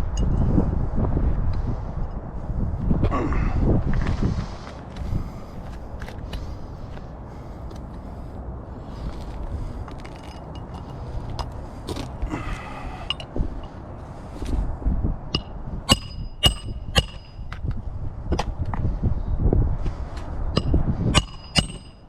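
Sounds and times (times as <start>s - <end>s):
low rumble: 0.0s - 22.0s
metal tools clinking on shingles: 9.9s - 12.2s, 12.8s - 13.3s.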